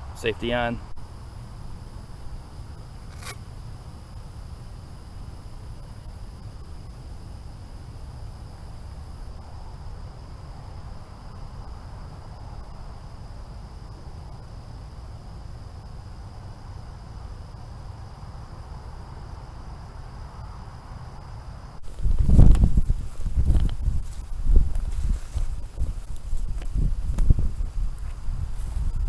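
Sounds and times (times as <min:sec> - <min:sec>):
crickets chirring: 0:00.0 - 0:29.0.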